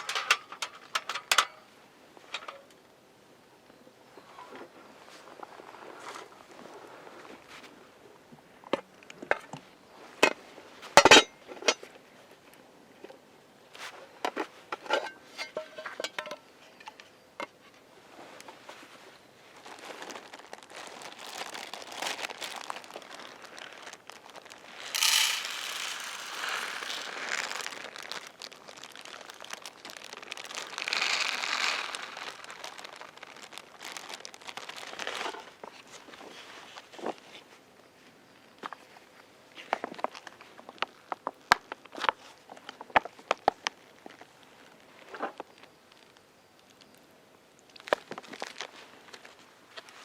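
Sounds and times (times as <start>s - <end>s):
crinkling and rustling handling: 0.0s - 1.6s, 13.8s - 37.6s, 47.7s - 50.0s.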